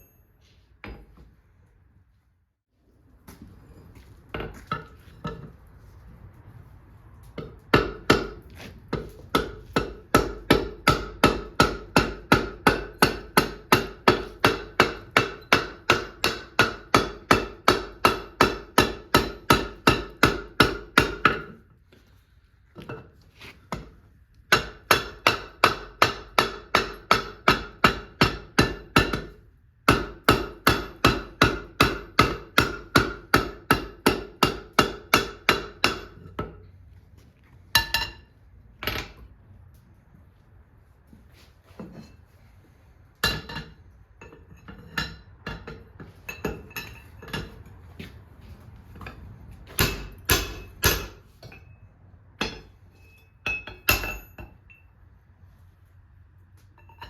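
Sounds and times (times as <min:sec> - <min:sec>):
hammer striking hot steel on anvil: 0:07.4 - 0:21.6, 0:23.7 - 0:36.6, 0:37.8 - 0:39.2, 0:43.2 - 0:47.6, 0:49.0 - 0:51.8, 0:52.4 - 0:54.9.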